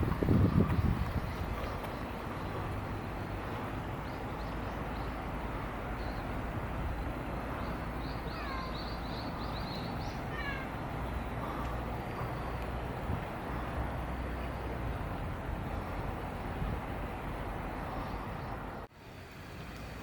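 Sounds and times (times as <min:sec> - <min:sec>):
outdoor background rumble: 0:00.0 - 0:20.0
small bird chirping: 0:07.6 - 0:11.4.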